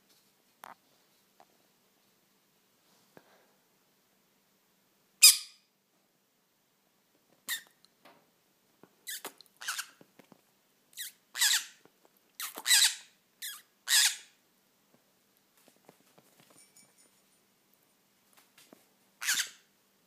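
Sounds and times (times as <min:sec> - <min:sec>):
parrot squawking: 0:09.1 - 0:09.9, 0:11.0 - 0:11.8, 0:12.4 - 0:14.4, 0:19.2 - 0:19.6.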